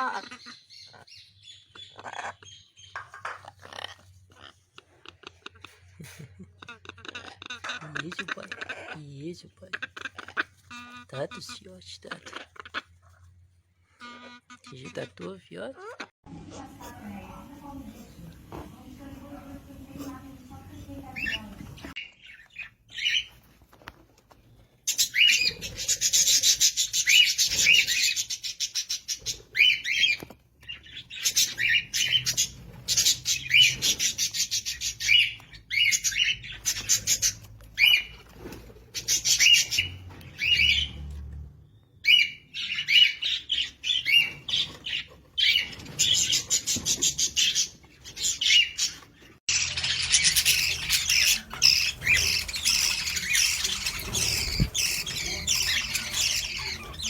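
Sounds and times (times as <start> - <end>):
bird chicks begging chirps: 19.0 - 23.4, 24.9 - 38.3, 38.9 - 41.2, 41.9 - 57.0.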